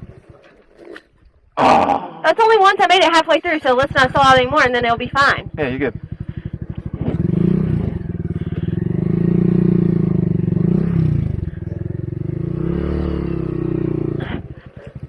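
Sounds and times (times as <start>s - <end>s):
small motorcycle engine revving: 3.4s - 15.0s.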